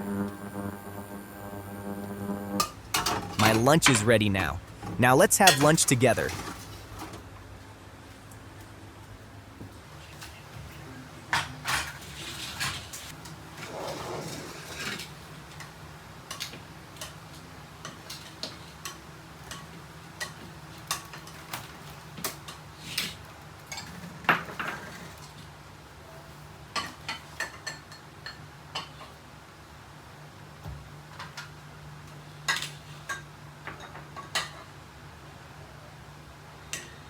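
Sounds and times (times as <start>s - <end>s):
low steady hum: 0.0s - 2.7s.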